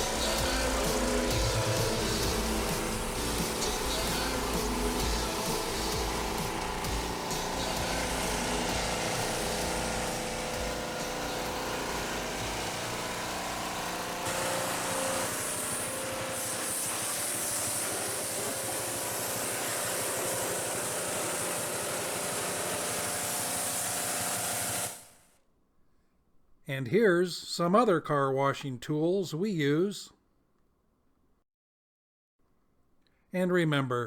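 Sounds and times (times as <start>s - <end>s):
water spray hissing: 0.0s - 12.4s, 14.3s - 22.5s
pressure washer engine running: 0.0s - 25.2s.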